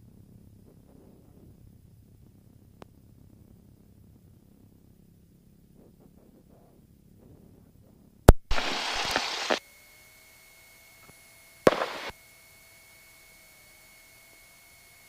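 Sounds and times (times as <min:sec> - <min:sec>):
faint electrical whine: 0:06.8 - 0:15.0
burst of static hiss: 0:08.3 - 0:09.6, 0:11.7 - 0:12.1
sharp electrical click: 0:08.3 - 0:09.6, 0:11.7 - 0:12.1.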